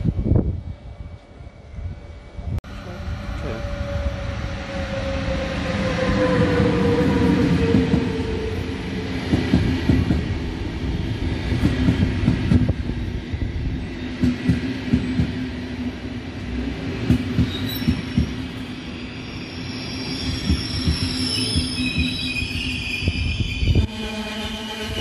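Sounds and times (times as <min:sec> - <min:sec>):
low train hum: 0:00.0 - 0:25.0
high wheel squeal: 0:17.4 - 0:25.0.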